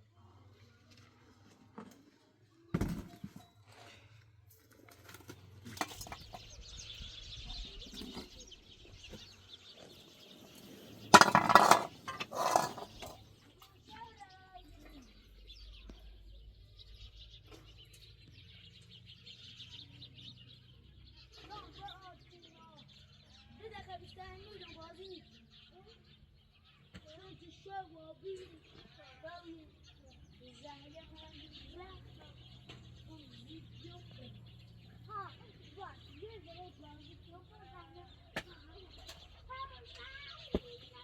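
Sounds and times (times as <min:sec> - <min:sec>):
birds chirping: 0:05.0 - 0:41.0
metal pots and utensils clattering: 0:05.6 - 0:06.4, 0:11.0 - 0:13.3.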